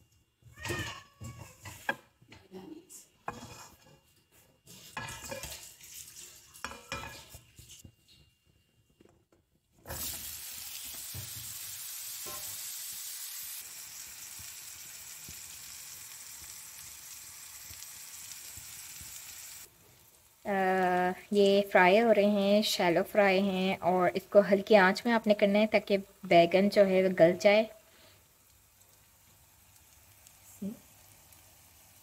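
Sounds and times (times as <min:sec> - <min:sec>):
eggplant sizzling in oil: 0:03.2 - 0:07.9, 0:09.8 - 0:32.0.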